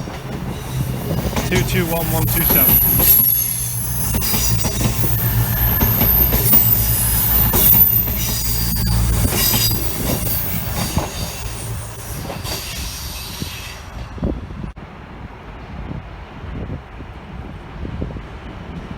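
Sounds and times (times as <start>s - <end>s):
train wheel squeal: 0.0s - 14.6s
diesel train engines: 0.0s - 18.9s.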